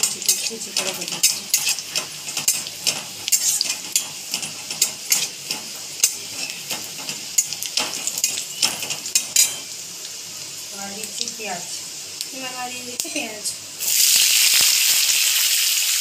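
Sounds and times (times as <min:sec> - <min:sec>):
spatula scraping and clicking wok: 0:00.0 - 0:09.7
garlic sizzling in hot oil: 0:00.0 - 0:16.0.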